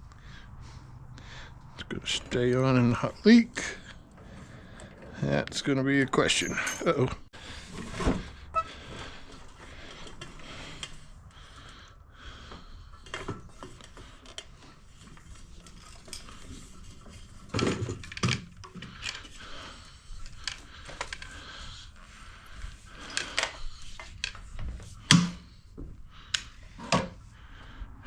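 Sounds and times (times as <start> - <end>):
metal tools clinking and knocking: 6.1 - 7.2.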